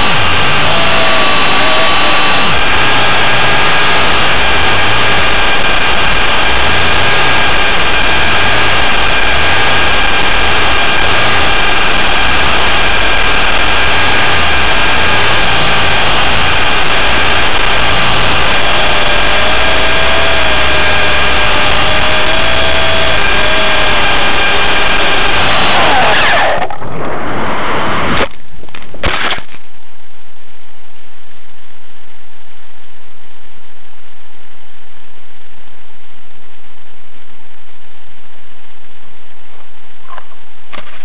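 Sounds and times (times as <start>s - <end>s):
helicopter motor whine: 0.0s - 26.1s
rotor noise: 0.0s - 28.3s.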